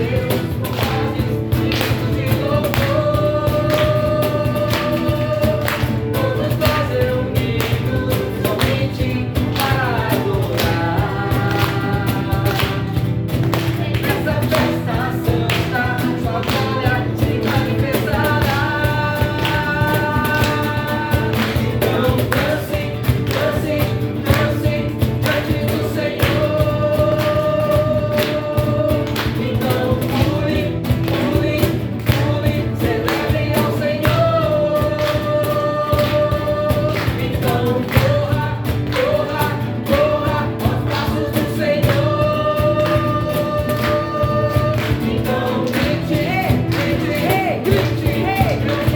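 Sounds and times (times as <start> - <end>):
choir singing held notes: 0.0 - 31.0, 31.6 - 48.9
band playing steady beat: 0.0 - 48.9.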